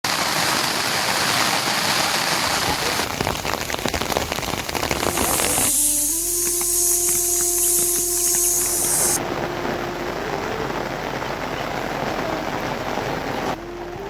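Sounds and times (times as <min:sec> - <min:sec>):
steady rain: 0:00.0 - 0:14.0
held tones: 0:05.1 - 0:09.2.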